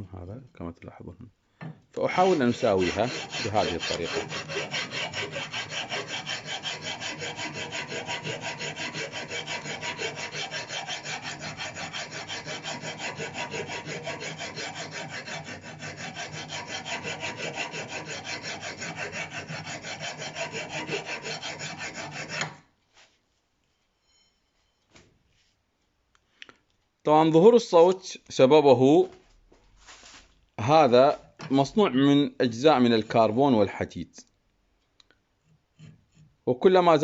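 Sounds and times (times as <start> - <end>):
brake pad being rubbed flat: 29.8 - 30.3.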